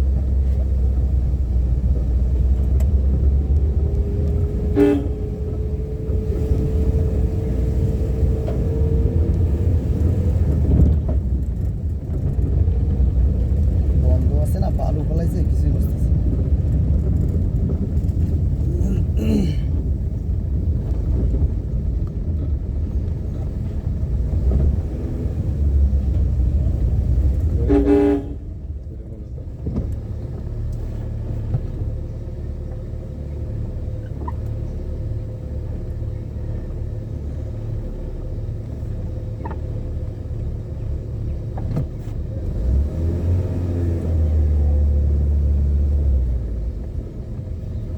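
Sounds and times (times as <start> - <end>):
car engine and road noise: 0.0 - 47.9
vehicle horn: 4.7 - 5.5, 27.5 - 28.5.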